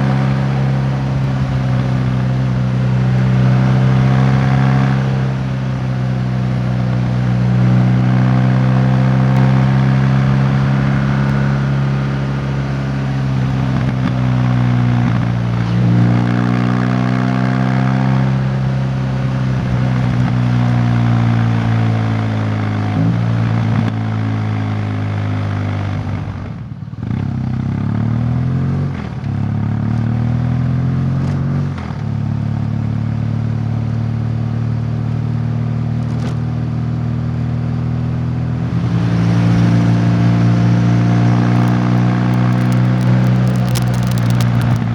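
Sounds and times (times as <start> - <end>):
wind and road noise: 0.0 - 23.9, 38.4 - 44.9.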